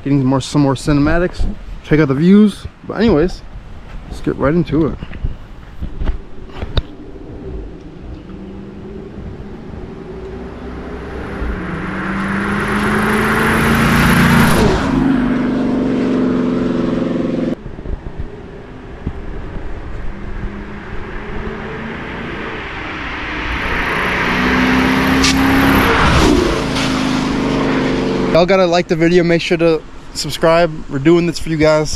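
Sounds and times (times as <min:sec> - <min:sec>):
tires spinning on wet pavement: 0:06.2 - 0:29.5
car engine revving hard: 0:08.5 - 0:17.6, 0:20.1 - 0:28.5.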